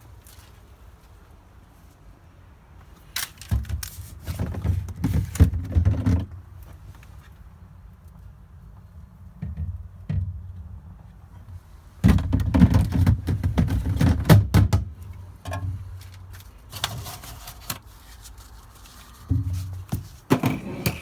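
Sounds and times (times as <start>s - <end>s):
knocks and rattles: 12.0s - 14.9s.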